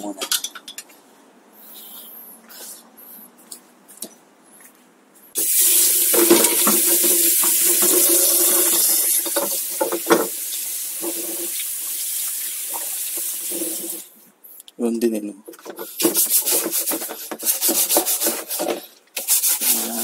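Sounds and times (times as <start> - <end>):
bike parts knocking and clattering: 0.1 - 1.0, 6.1 - 10.4
water running from a tap: 5.4 - 14.1.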